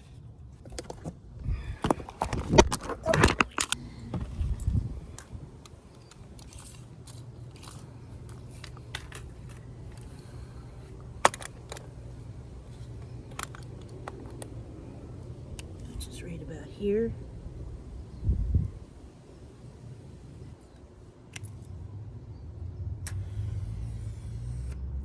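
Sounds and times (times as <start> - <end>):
boards being handled: 0.0 - 4.6
low steady hum: 0.0 - 25.0.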